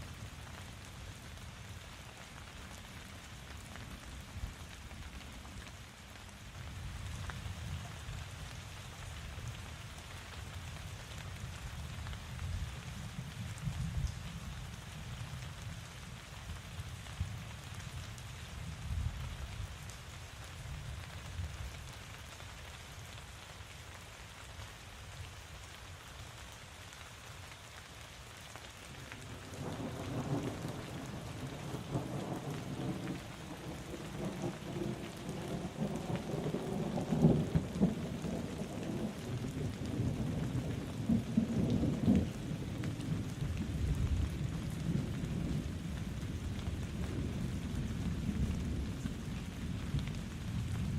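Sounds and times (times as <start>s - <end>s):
steady rain falling: 0.0s - 50.9s
low roll of thunder: 29.2s - 50.9s.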